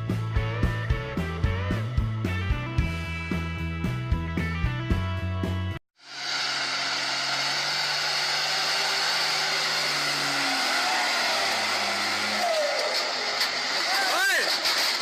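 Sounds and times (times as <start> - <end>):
music: 0.0 - 5.8
vehicle engine running: 6.0 - 15.0.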